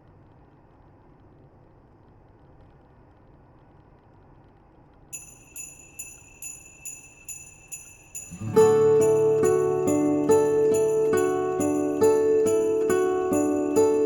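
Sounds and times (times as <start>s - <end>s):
faint low rumble: 0.0s - 5.2s
sleigh bells ringing: 5.2s - 14.0s.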